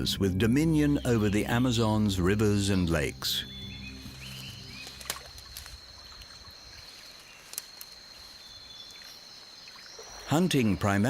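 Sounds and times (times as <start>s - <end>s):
high insect tone: 0.6s - 11.0s
water trickling and lapping: 3.9s - 11.0s.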